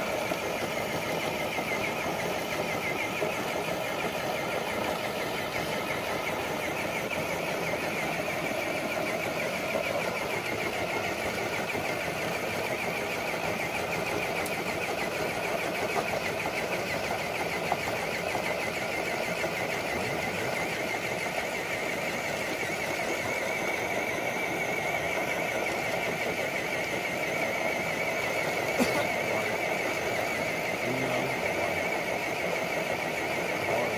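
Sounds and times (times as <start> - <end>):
electric motor and gears whining: 0.0 - 33.9.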